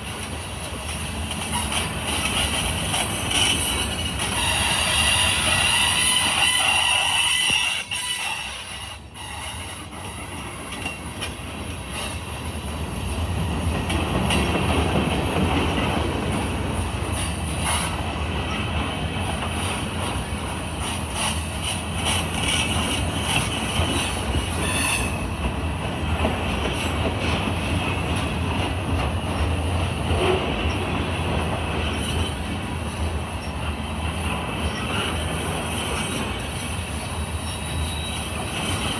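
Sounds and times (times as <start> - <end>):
train wheels on rails: 0.0 - 38.9
wheel squeal: 1.5 - 10.3, 21.2 - 25.4, 34.6 - 38.9.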